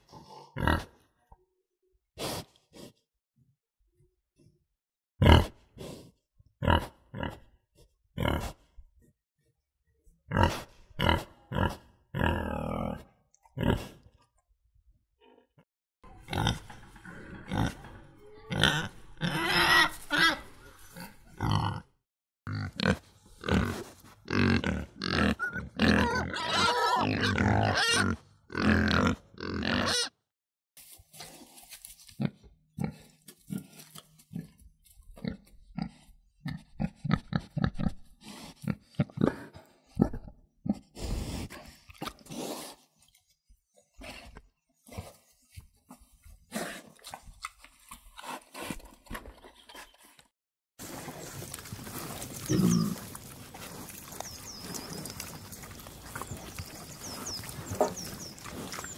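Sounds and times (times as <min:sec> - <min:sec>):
pigs grunting and oinking: 0:00.0 - 0:01.1, 0:05.2 - 0:06.0, 0:06.6 - 0:07.6, 0:08.2 - 0:08.7, 0:10.3 - 0:14.2, 0:16.1 - 0:21.9, 0:22.5 - 0:30.2, 0:32.2 - 0:34.6, 0:35.2 - 0:42.9, 0:45.9 - 0:49.5, 0:50.8 - 0:58.9
pigs squealing: 0:18.5 - 0:20.7, 0:24.4 - 0:30.1, 0:51.7 - 0:58.9.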